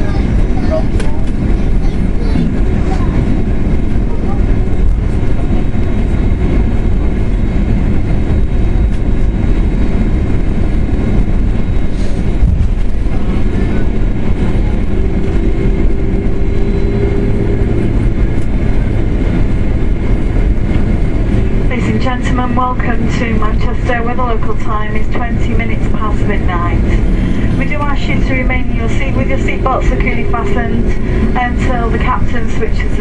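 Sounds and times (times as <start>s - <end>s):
airliner cabin rumble: 0.0s - 33.0s
faint steady hum: 13.3s - 33.0s.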